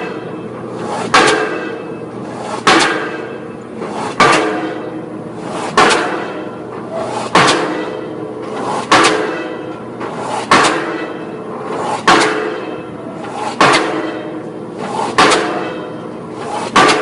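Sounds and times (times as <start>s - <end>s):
pile-driving hammer blows: 0.0s - 17.0s
metallic ringing: 1.4s - 2.2s, 7.6s - 8.5s, 9.2s - 10.1s, 10.7s - 14.7s, 15.3s - 16.3s.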